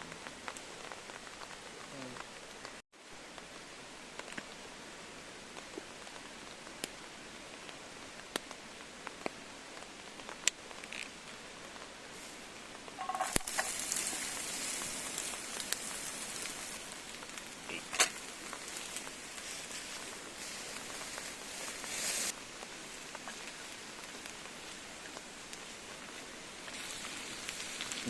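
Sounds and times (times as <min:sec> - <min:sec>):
fire crackling: 0:00.0 - 0:28.0
food sizzling in a pan: 0:12.1 - 0:28.0.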